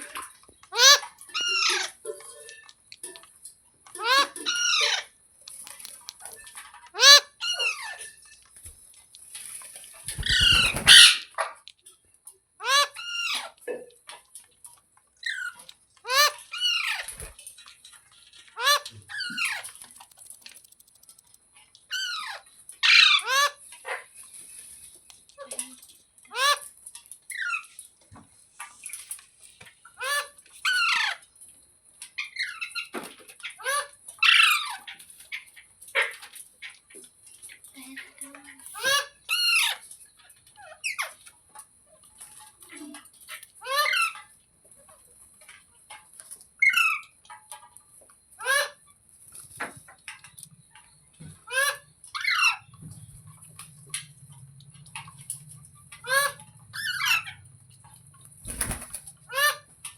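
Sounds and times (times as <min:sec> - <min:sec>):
parrot squawking: 0:00.8 - 0:01.9, 0:07.0 - 0:07.9, 0:10.1 - 0:11.4, 0:12.6 - 0:13.5, 0:51.5 - 0:52.7, 0:56.0 - 0:57.4, 0:58.5 - 0:59.7.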